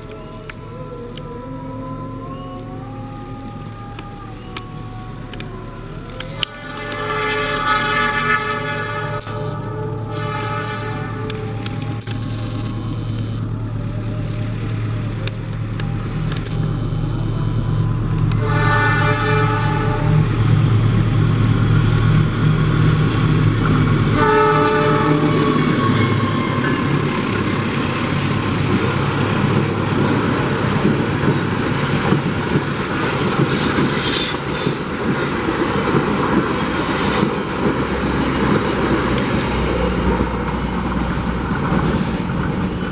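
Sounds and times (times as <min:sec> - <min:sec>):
low engine drone: 0:00.0 - 0:42.9
locomotive horn: 0:02.2 - 0:42.9
train wheels clattering on rails: 0:18.2 - 0:42.9.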